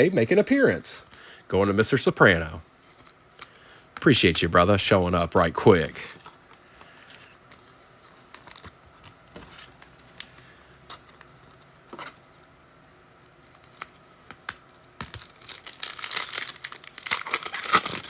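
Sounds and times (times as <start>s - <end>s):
wrapper crinkling and tearing: 7.0s - 9.2s, 15.0s - 18.0s.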